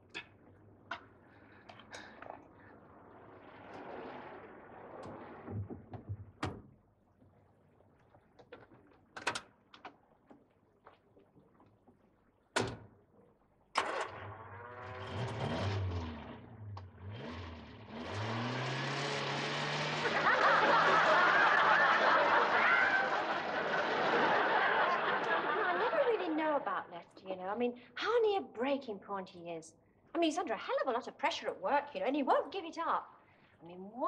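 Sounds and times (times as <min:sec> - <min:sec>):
car engine starting and revving: 0:13.8 - 0:24.4.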